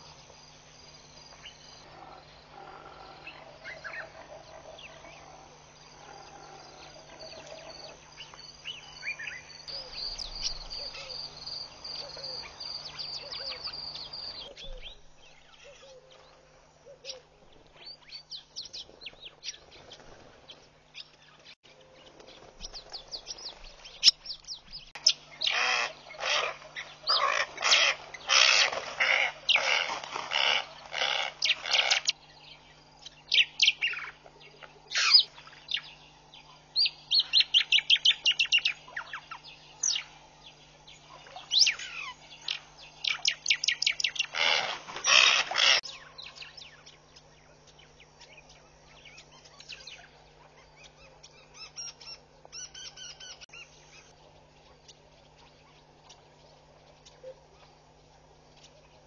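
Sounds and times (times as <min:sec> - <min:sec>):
harsh rasping bird calls: 0:22.8 - 0:32.2, 0:32.8 - 0:59.0.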